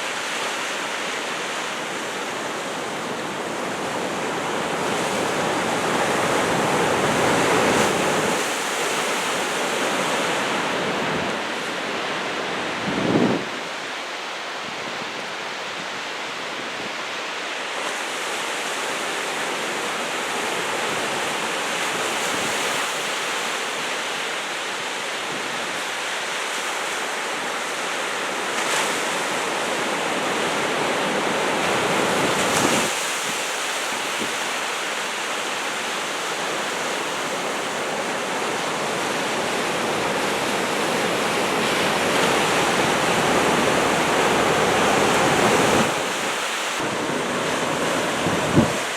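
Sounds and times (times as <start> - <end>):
ocean surf breaking: 0.0 - 48.9
wind on microphone: 10.0 - 14.0, 37.3 - 48.9.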